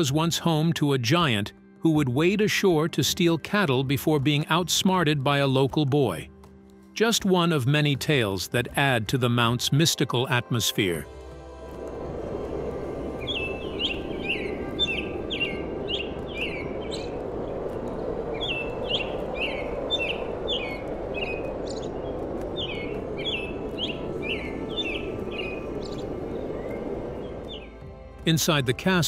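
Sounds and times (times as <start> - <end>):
steady rushing background: 11.0 - 29.0
birds chirping falling calls: 12.5 - 28.1.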